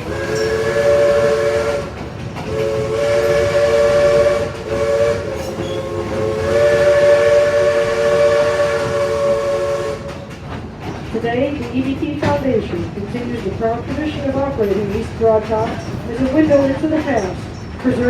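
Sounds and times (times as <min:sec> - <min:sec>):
steam whistle blasts: 0:00.0 - 0:10.3
train running rumble: 0:00.0 - 0:18.0.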